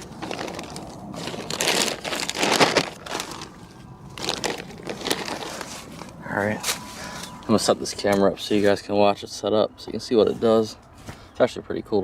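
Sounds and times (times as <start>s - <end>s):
plastic pouch crinkling: 0.0s - 6.2s.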